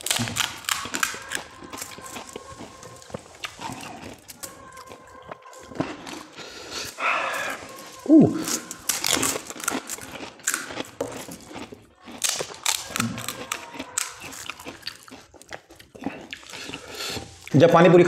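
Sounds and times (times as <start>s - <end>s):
crisp shells crunching: 0.0s - 17.5s.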